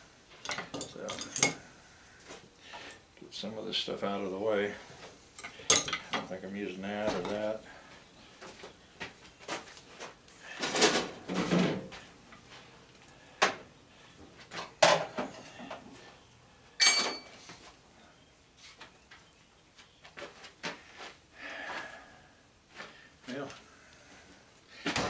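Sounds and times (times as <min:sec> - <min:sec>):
tools rattling and scraping: 0:00.3 - 0:01.6, 0:04.9 - 0:06.4, 0:09.4 - 0:12.5, 0:16.8 - 0:17.6
ringing metal clank: 0:16.8 - 0:17.4.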